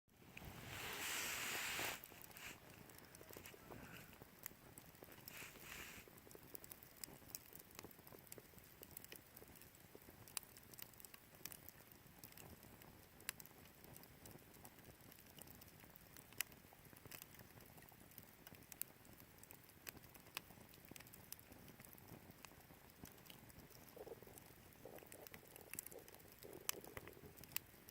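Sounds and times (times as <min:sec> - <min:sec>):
faint hiss: 0:00.2 - 0:07.2
wood fire crackling: 0:00.2 - 0:27.9.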